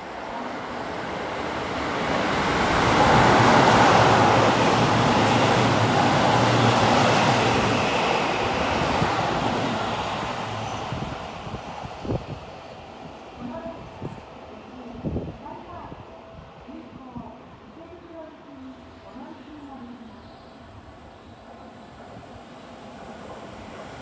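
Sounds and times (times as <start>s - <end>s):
train wheels rushing on rails: 0.0s - 14.2s.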